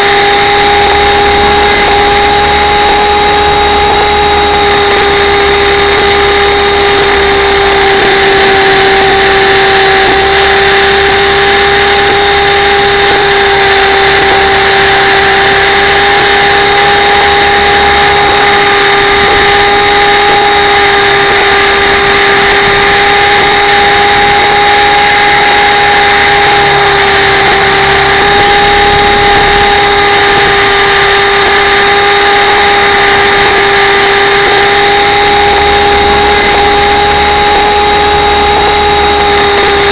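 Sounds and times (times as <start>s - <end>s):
model helicopter rotor whine: 0.0s - 39.9s.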